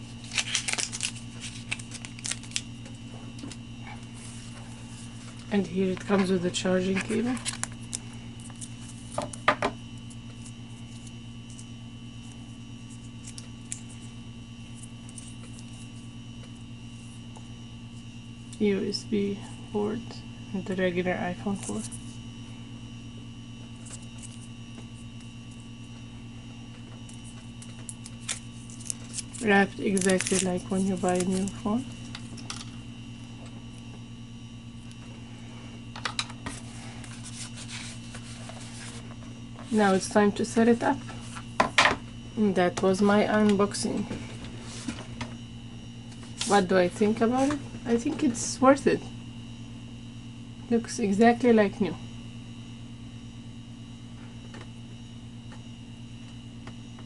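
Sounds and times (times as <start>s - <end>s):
low electrical hum: 0.0s - 57.0s
packaging clicks and rustles: 0.2s - 2.7s.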